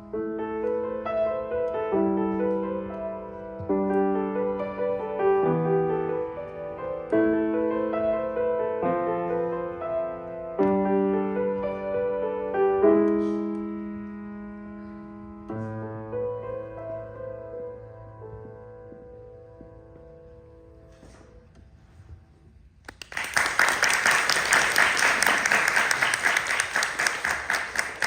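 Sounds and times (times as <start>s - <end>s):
solo piano piece: 0.0s - 22.3s.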